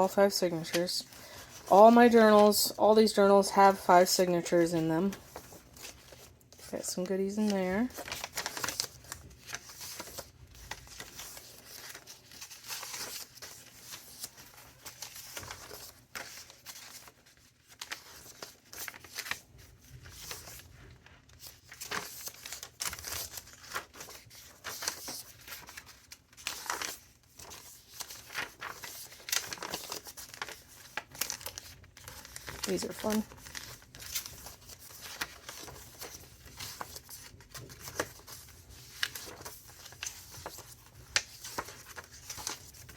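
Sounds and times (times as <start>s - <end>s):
paper rustling and crinkling: 0.0s - 42.9s.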